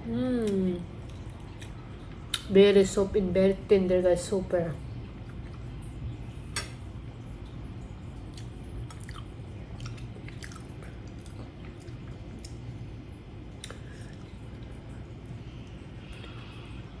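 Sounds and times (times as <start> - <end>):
steady low hum: 0.0 - 17.0
close-up chewing: 7.4 - 17.0.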